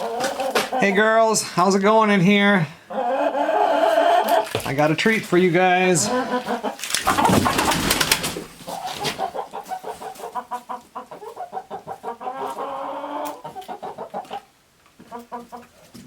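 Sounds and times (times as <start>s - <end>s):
hens clucking: 0.0s - 16.0s
loud rustling clatter: 6.8s - 9.2s.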